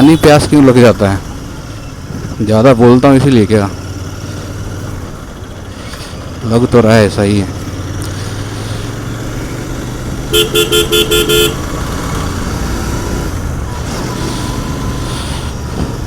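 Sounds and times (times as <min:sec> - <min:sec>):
motorcycle engine running: 0:00.0 - 0:16.0
road and wind noise: 0:00.0 - 0:16.0
vehicle horn toots: 0:10.3 - 0:11.8.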